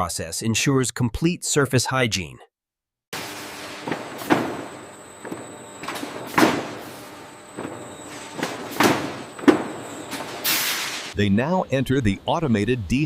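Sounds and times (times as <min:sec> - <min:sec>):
processing machinery hissing: 0:03.2 - 0:11.2
heavy clunks and knocks: 0:03.8 - 0:10.5.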